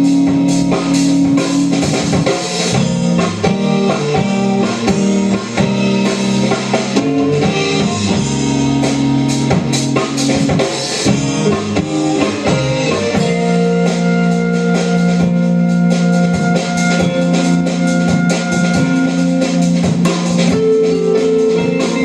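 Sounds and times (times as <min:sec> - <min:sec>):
bass guitar: 0:00.0 - 0:22.0
drum kit beat: 0:00.0 - 0:22.0
electric guitar: 0:00.0 - 0:22.0.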